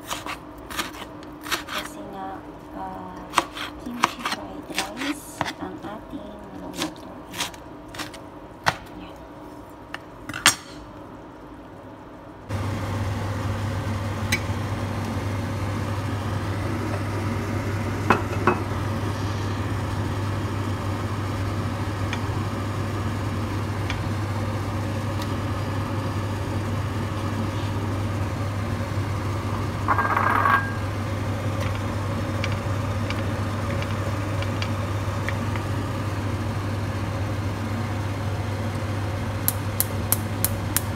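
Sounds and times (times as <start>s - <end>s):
knife chopping on plastic board: 0.0s - 1.8s, 3.3s - 5.6s
low mechanical hum: 0.0s - 40.9s.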